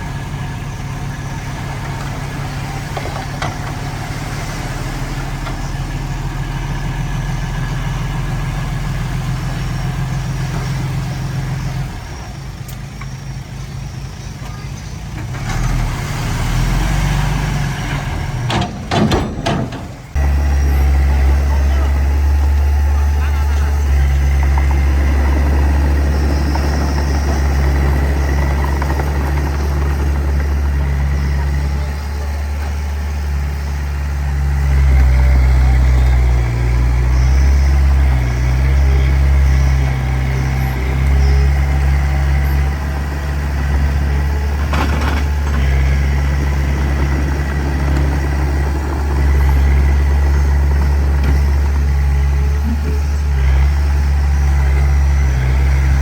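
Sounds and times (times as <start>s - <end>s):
bulldozer engine running: 0.0s - 56.0s.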